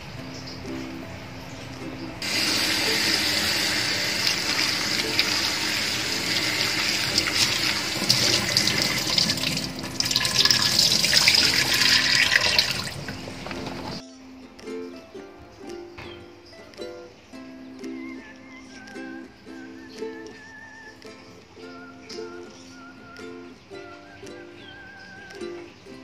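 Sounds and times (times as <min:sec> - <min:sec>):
hands rubbing in splashing water: 0:02.2 - 0:14.0
tap water running into bowl: 0:02.2 - 0:14.0
water pouring into sink: 0:02.2 - 0:14.0.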